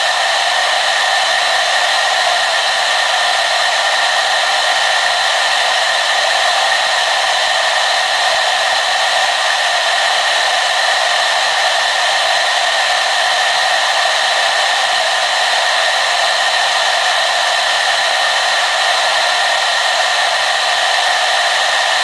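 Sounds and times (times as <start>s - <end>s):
hair dryer whirring: 0.0s - 22.0s.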